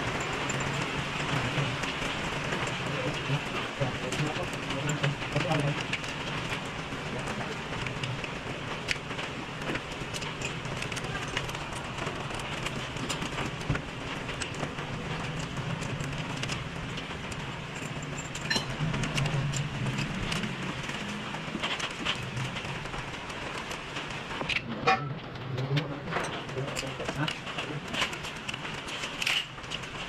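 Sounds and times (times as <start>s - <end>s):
hand tools clinking on metal: 17.7s - 20.4s.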